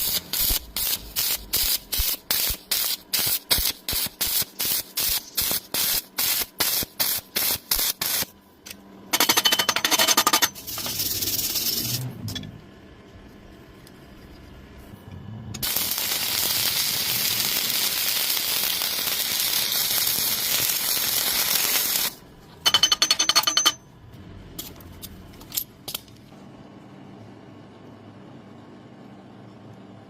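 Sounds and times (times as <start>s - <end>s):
arc welding hiss: 0.0s - 8.3s, 15.6s - 22.2s
ringing metal taps: 22.6s - 23.8s.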